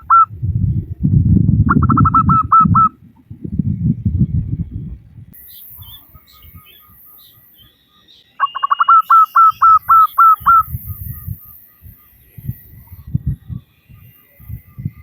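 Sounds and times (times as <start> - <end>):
dove cooing: 0.0 - 0.9, 1.7 - 3.0, 8.4 - 10.8
low pulsing sounds: 0.0 - 8.1, 10.4 - 15.0
faint small bird chirps: 5.4 - 15.0.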